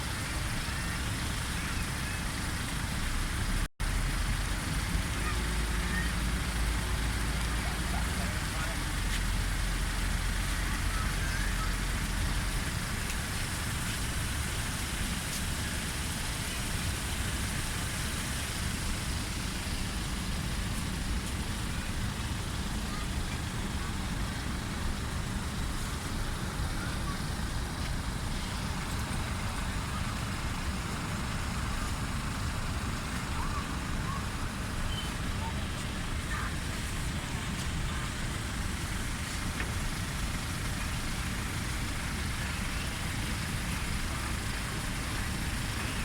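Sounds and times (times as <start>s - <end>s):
ferry engine rumble: 0.0s - 46.0s
traffic noise: 0.0s - 46.0s
wind: 0.0s - 46.0s
faint voices: 25.5s - 31.5s, 32.2s - 38.8s.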